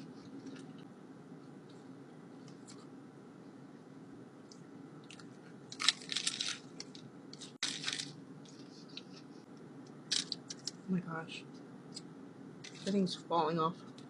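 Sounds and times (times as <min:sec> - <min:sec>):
small crackles: 0:04.5 - 0:10.8
crunching into crispy taco: 0:05.1 - 0:06.7.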